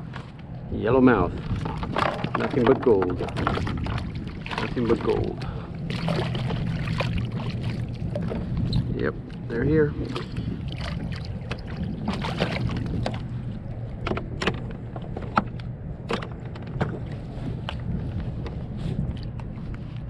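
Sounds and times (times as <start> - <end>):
steady low rumble: 0.0 - 20.0
water lapping against kayak: 0.0 - 20.0
knocks and clicks on kayak: 1.5 - 5.3, 13.9 - 17.8.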